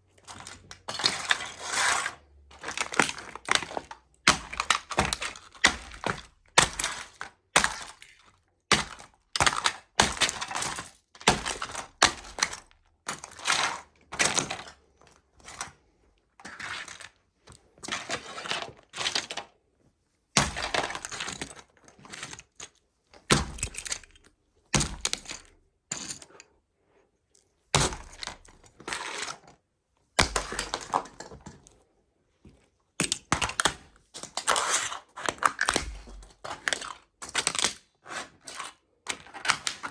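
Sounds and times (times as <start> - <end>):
toy trucks cracking and breaking: 0.3 - 14.7, 20.4 - 21.6, 23.3 - 24.2, 24.8 - 26.4, 27.8 - 29.4, 30.2 - 31.6, 33.0 - 39.9.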